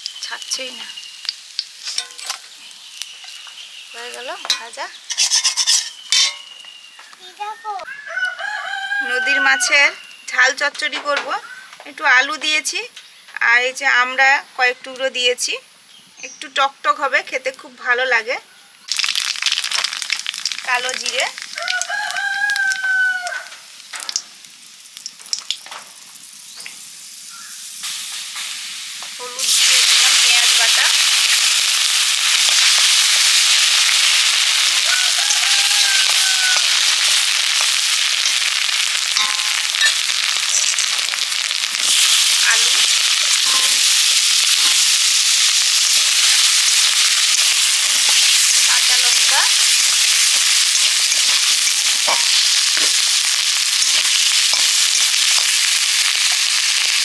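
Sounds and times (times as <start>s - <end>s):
seeds crackling in hot oil: 0.0s - 15.6s, 16.2s - 57.0s
loud sizzle in wok: 0.0s - 57.0s
metal spatula stirring: 1.8s - 2.5s, 4.4s - 6.6s, 34.0s - 41.2s, 45.9s - 56.6s.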